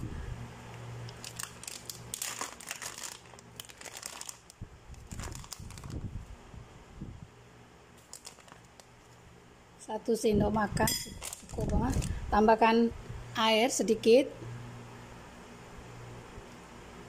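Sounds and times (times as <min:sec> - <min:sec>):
plastic packet crinkling: 0:01.0 - 0:06.1, 0:08.0 - 0:09.2, 0:11.1 - 0:12.2.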